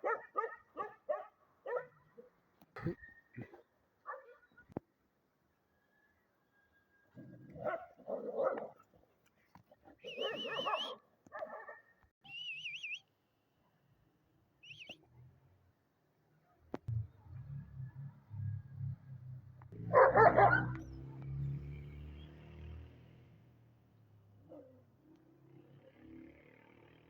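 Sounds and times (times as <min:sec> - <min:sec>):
dog barking and whining: 0:00.0 - 0:02.3, 0:07.5 - 0:08.9, 0:10.1 - 0:11.8, 0:19.9 - 0:20.9.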